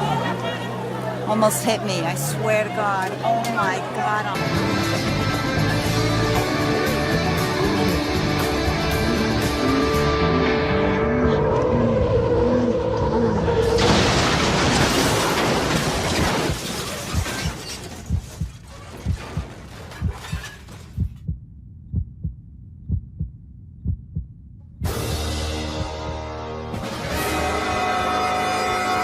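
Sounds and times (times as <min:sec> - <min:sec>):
loud crash with shattering: 0:13.7 - 0:18.1
heartbeat thumps: 0:18.1 - 0:26.3.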